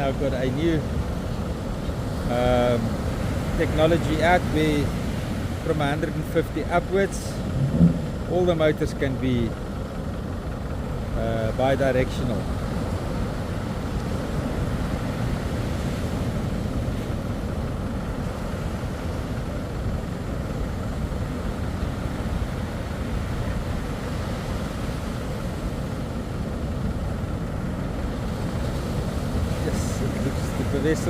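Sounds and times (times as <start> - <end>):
surf washing: 0.0 - 10.8, 11.5 - 31.0
outboard motors rumbling: 0.0 - 31.0.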